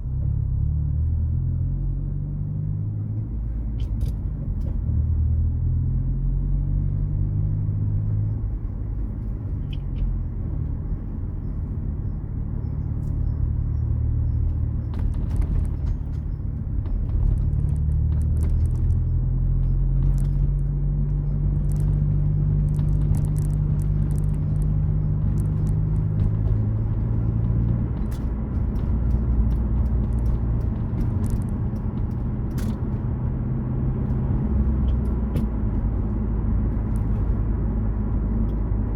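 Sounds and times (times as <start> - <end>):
car engine revving: 12.4 - 38.9
sharp ticks: 17.2 - 20.7, 21.3 - 33.0.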